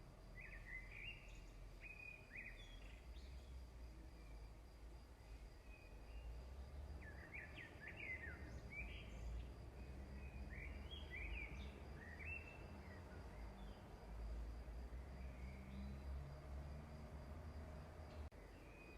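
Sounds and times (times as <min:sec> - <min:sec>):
faint low hum: 0:00.0 - 0:18.9
small bird chirping: 0:00.4 - 0:03.6, 0:07.0 - 0:13.9.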